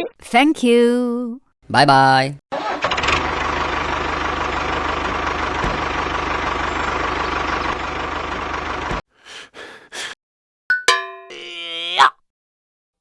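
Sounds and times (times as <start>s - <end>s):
vehicle engine rattling drone: 2.9s - 9.0s.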